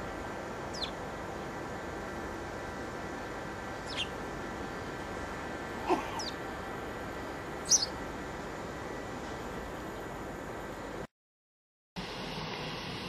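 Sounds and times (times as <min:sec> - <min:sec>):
birds giving high falling calls: 0:00.0 - 0:01.7, 0:03.0 - 0:05.0, 0:05.8 - 0:06.6, 0:07.2 - 0:08.1
steady hiss: 0:00.0 - 0:11.1, 0:12.0 - 0:13.0.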